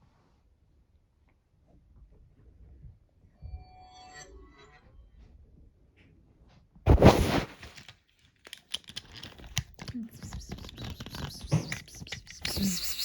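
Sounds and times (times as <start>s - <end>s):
loud crackling tearing noise: 6.9s - 13.0s
small clicks and rustles: 7.2s - 13.0s.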